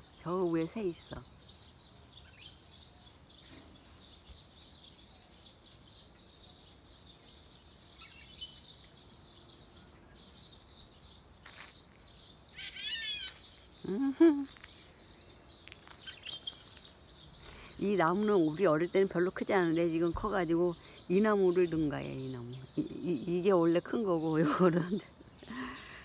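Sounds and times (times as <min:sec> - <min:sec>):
wild birds singing and chirping: 0:00.0 - 0:26.0
loud low-pitched bird call: 0:12.5 - 0:14.4.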